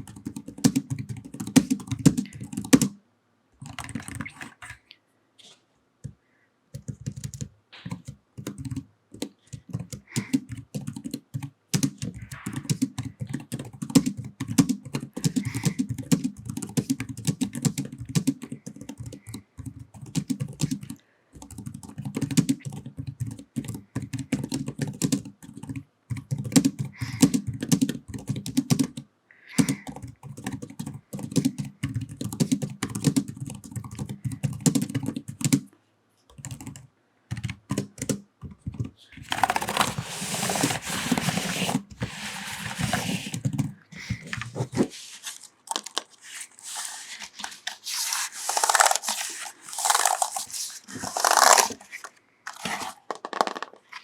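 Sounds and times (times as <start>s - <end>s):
computer keyboard typing: 0.0s - 3.0s, 3.6s - 4.8s, 6.7s - 35.7s, 36.3s - 44.6s, 48.0s - 51.8s
scratchy rubbing and brushing: 39.3s - 53.2s.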